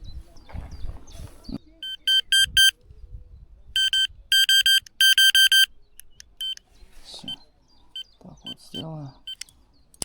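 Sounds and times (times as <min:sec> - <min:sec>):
bite alarm beeping: 0:01.8 - 0:02.7, 0:03.8 - 0:05.7, 0:06.4 - 0:06.6.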